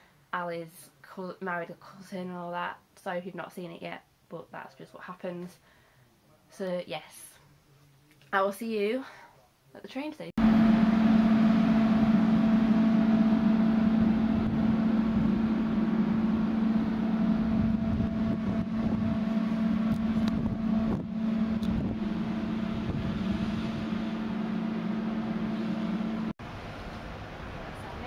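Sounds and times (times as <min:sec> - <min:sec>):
train humming low: 0:10.4 - 0:28.0.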